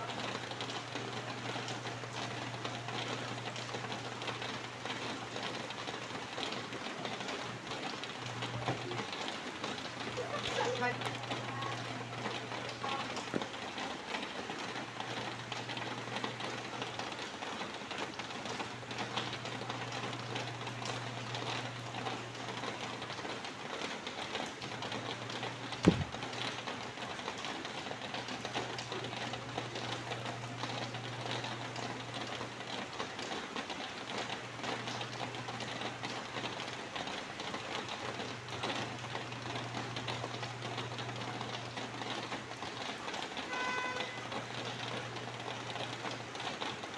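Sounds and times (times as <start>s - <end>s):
rain falling: 0.0s - 46.9s
sharp knock: 25.8s - 26.2s.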